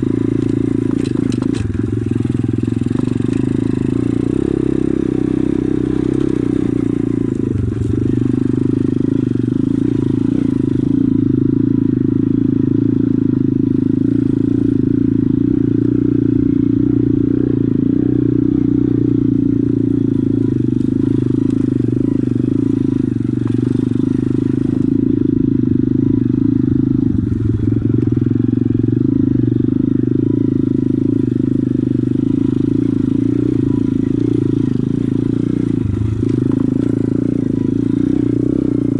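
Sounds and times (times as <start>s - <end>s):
pit bike engine running: 0.0s - 38.9s.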